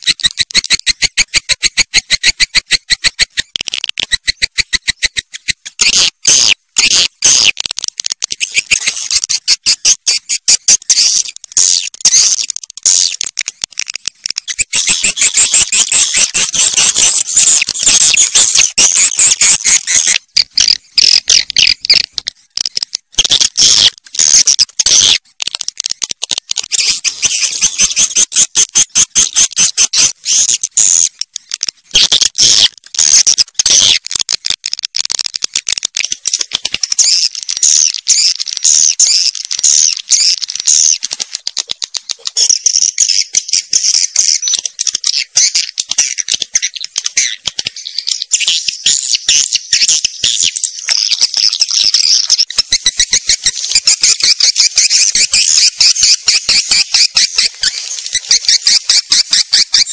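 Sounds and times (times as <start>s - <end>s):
swiftlets twittering: 14.4s - 22.1s.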